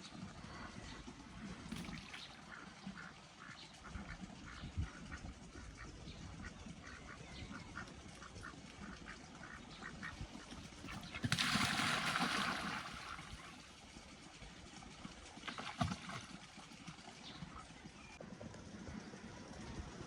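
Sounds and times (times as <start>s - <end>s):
ducks quacking: 2.2s - 11.4s.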